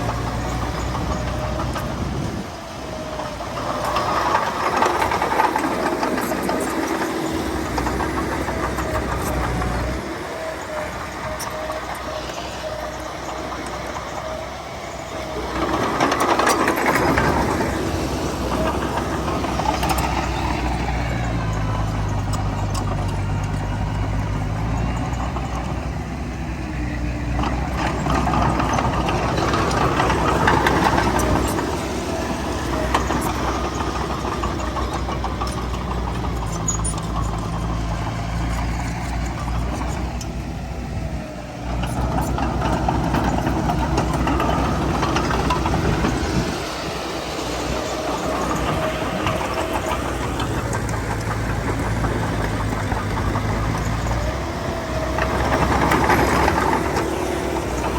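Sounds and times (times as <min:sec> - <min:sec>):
heavy diesel engines running: 0:00.0 - 0:57.9.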